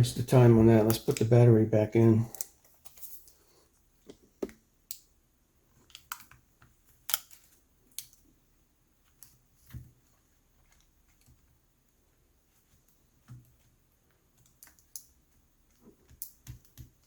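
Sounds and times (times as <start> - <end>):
laptop parts clicking and tapping: 5.8 - 8.2, 13.2 - 17.0.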